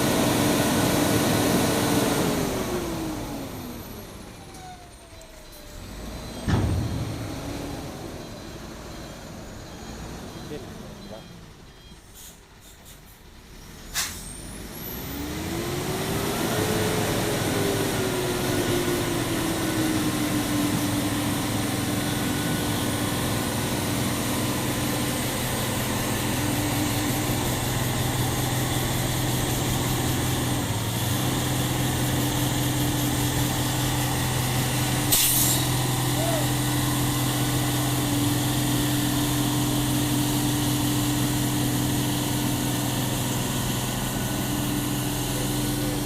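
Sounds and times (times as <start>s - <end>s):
truck engine revving: 5.7s - 11.0s, 13.4s - 46.0s.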